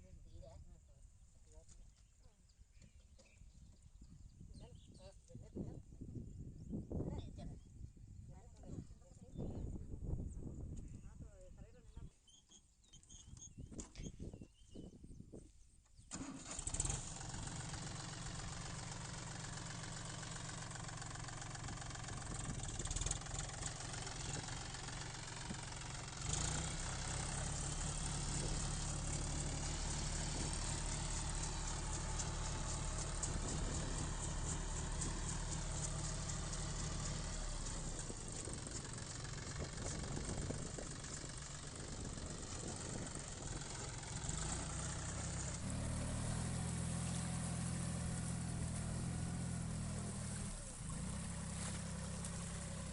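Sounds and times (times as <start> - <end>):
tractor diesel engine running: 16.1 - 52.9.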